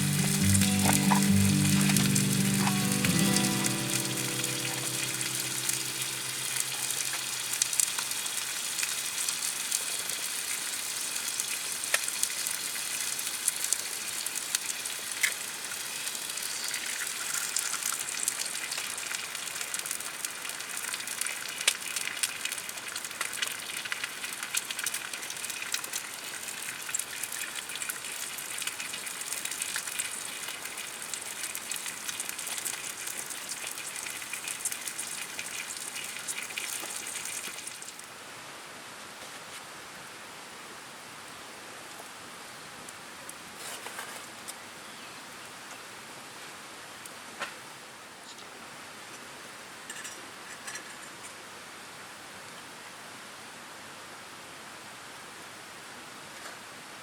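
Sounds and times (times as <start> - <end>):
campfire crackling and popping: 0.0 - 38.0.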